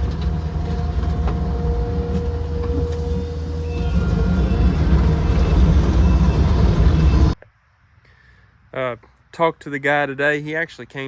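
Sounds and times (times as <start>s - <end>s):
diesel engine rumbling: 0.0s - 7.4s
thin steady whine: 0.0s - 7.4s.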